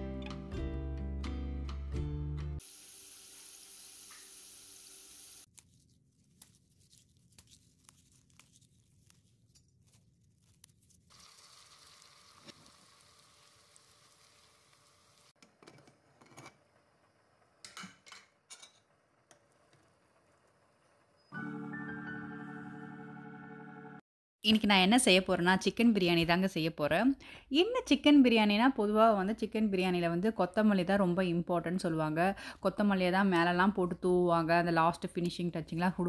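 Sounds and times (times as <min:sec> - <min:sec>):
onions sizzling in oil: 0:02.6 - 0:05.5, 0:11.1 - 0:15.4.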